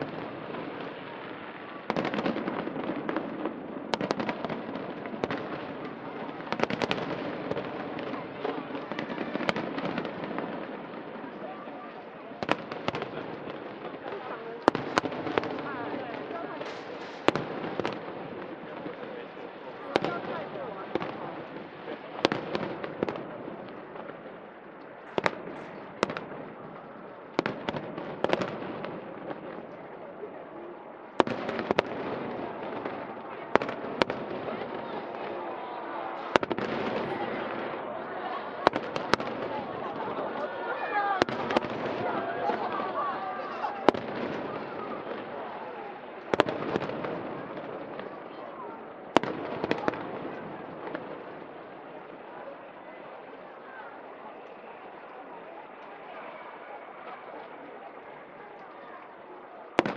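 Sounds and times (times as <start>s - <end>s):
fireworks cracks and pops: 0.0s - 11.4s, 12.4s - 30.0s, 31.2s - 35.4s, 38.6s - 40.4s, 41.2s - 48.4s, 49.2s - 52.2s, 58.5s - 59.9s.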